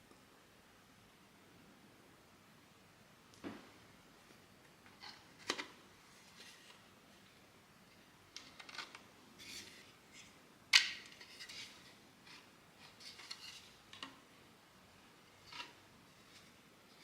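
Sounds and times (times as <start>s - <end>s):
plastic parts clicking and rubbing: 8.3s - 14.2s.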